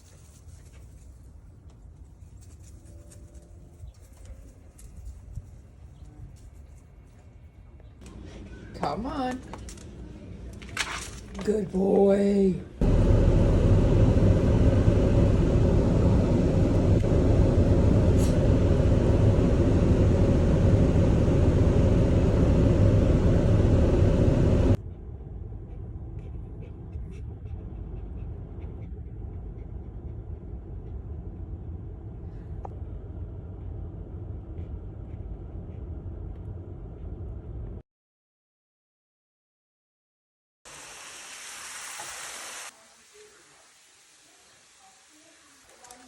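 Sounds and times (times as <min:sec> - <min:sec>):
loud steady rumbling: 0:12.8 - 0:37.8
quiet low rumble: 0:12.8 - 0:37.8.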